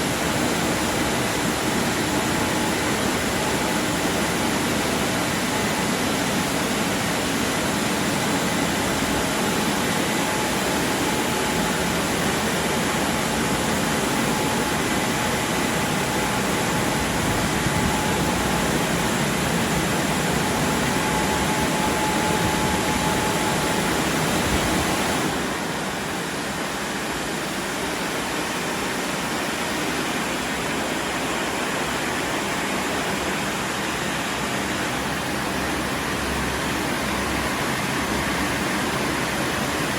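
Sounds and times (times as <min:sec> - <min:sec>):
car wash rushing noise: 0:00.0 - 0:39.9.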